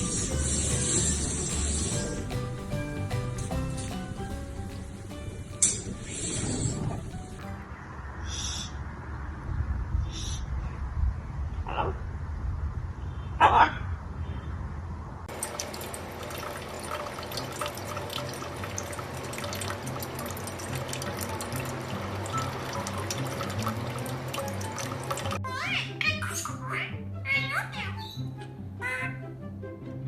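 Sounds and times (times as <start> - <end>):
running water: 0.0 - 7.7, 15.3 - 25.4
water drips and splashes: 15.3 - 25.4.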